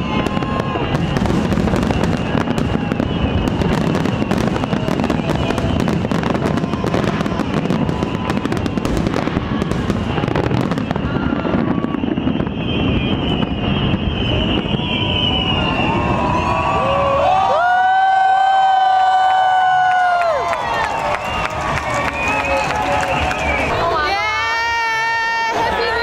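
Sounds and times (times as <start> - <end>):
fireworks crackling bangs: 0.0 - 16.8.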